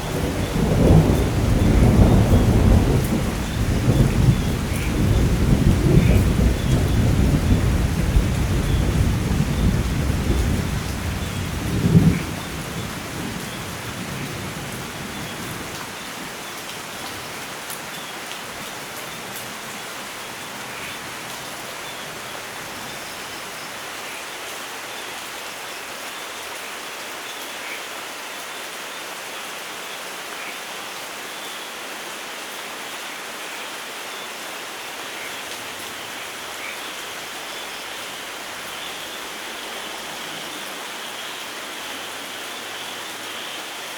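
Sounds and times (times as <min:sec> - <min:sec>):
thunder rumble and crack: 0:00.0 - 0:15.8
steady rain falling: 0:00.0 - 0:43.9.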